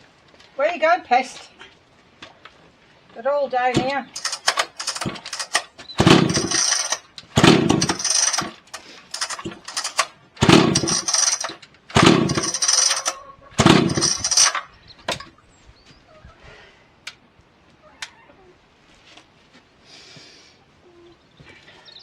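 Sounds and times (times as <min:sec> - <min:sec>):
chainsaw starter cord pulled: 0:03.7 - 0:15.3.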